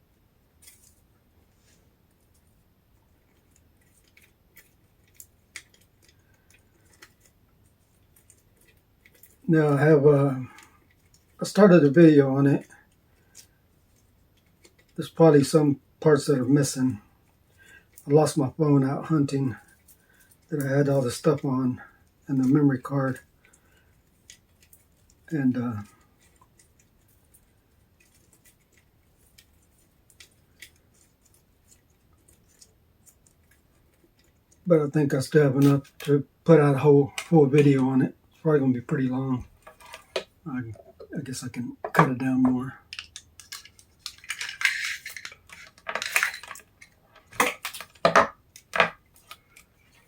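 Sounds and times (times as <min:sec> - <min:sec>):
packaging crinkling: 0:42.8 - 0:50.0.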